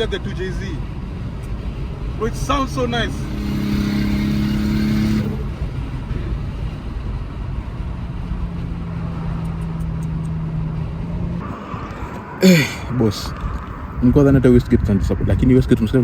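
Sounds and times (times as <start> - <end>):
turbocharged car engine running: 0.0 - 14.0.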